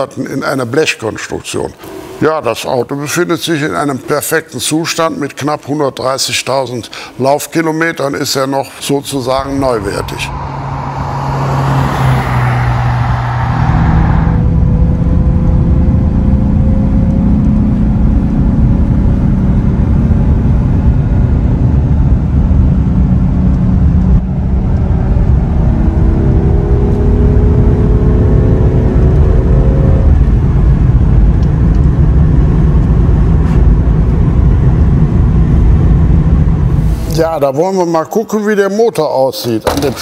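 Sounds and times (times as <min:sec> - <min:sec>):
heavy low rumble: 0:08.0 - 0:37.5
car engine running: 0:09.1 - 0:37.1.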